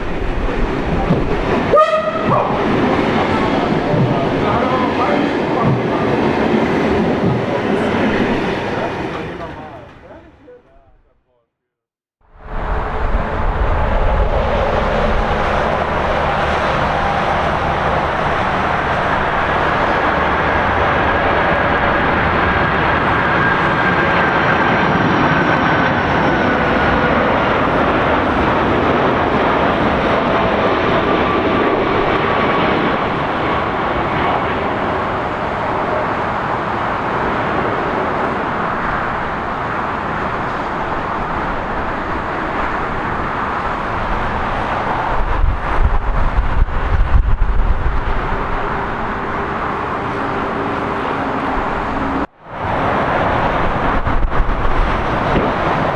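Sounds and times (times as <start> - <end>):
jet engines roaring: 0.0 - 10.4, 12.4 - 55.9.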